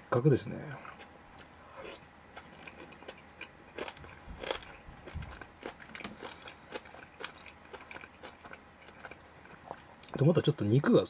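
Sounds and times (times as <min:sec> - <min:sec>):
close-up chewing: 0:00.8 - 0:10.6.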